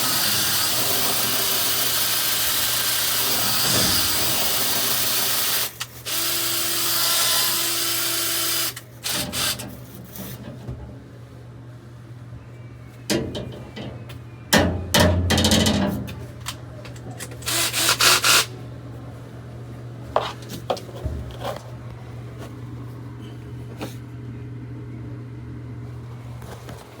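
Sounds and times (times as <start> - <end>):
steady low hum: 7.5 - 27.0.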